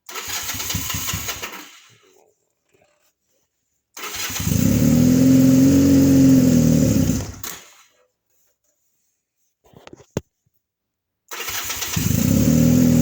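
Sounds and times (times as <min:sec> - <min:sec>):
car engine turning over: 0:00.1 - 0:01.9, 0:04.0 - 0:07.8, 0:11.3 - 0:13.0.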